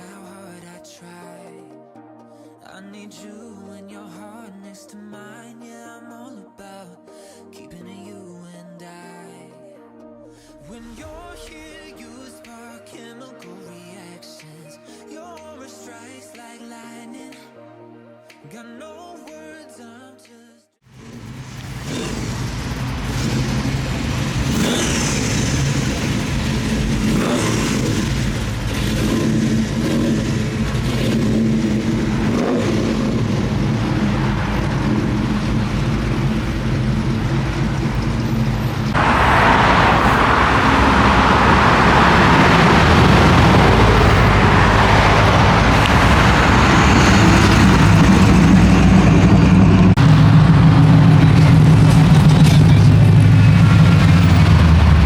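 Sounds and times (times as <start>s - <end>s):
broad rush of noise: 20.9s - 55.0s
car engine droning: 20.9s - 55.0s.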